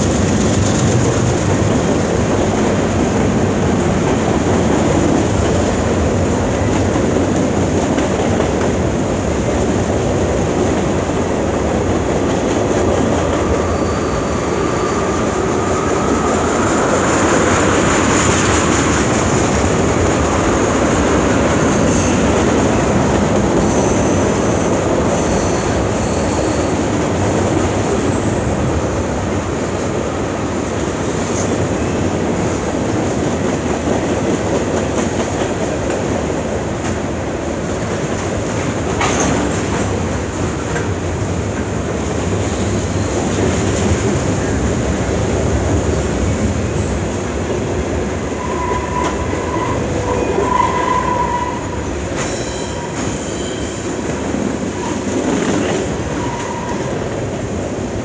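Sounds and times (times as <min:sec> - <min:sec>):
steel wheels rumbling on rail: 0:00.0 - 0:58.0
faint wheel squeal: 0:13.7 - 0:15.1, 0:52.2 - 0:55.0.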